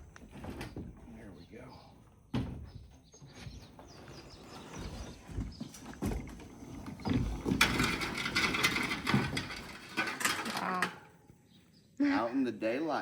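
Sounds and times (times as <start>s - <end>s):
motorcycle scraping and rolling: 3.1s - 10.9s.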